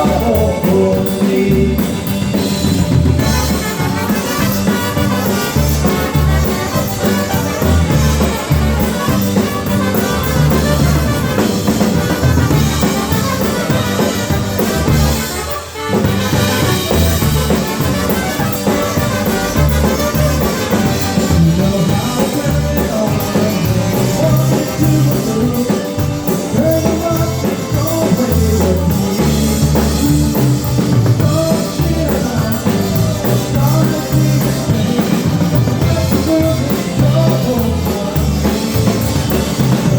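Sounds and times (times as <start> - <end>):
polka band playing: 0.0 - 39.9.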